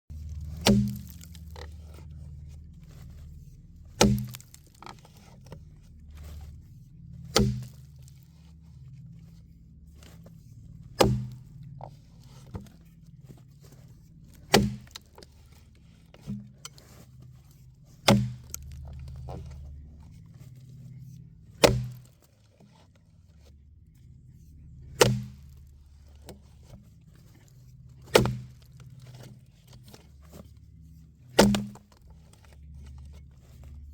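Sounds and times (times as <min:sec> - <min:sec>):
axe chopping log: 0:00.1 - 0:02.0, 0:03.9 - 0:05.3, 0:07.2 - 0:08.1, 0:11.0 - 0:11.5, 0:14.4 - 0:15.4, 0:18.0 - 0:19.3, 0:21.6 - 0:22.1, 0:25.0 - 0:25.6, 0:28.1 - 0:29.3, 0:31.4 - 0:32.0.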